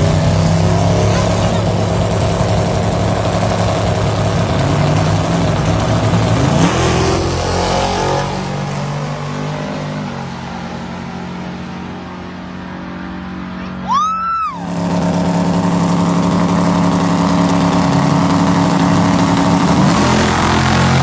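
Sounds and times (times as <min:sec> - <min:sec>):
race car engine running hard: 0:00.0 - 0:09.3, 0:14.5 - 0:21.0.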